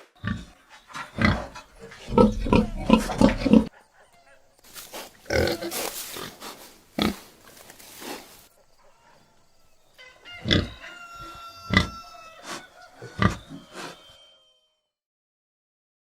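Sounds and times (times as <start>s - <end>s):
pig grunting and oinking: 0.2s - 3.8s, 5.2s - 7.4s, 10.4s - 14.1s.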